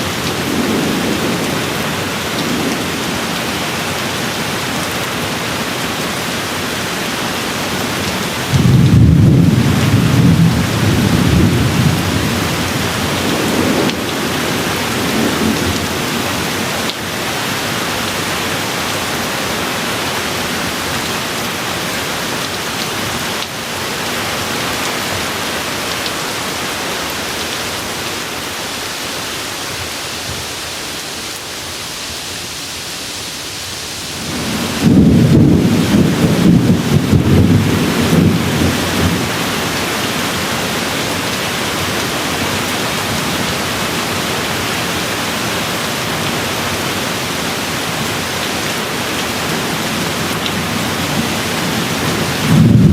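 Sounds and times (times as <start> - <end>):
steady rain: 0.0 - 52.9
thunder rumbling: 8.4 - 16.6, 34.0 - 39.8, 50.9 - 52.9.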